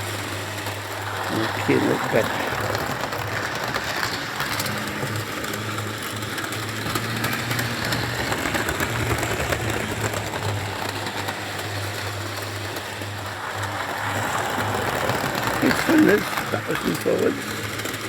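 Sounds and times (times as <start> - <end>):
model train motor hum: 0.0 - 18.0
wheels clicking on rails: 0.0 - 18.0.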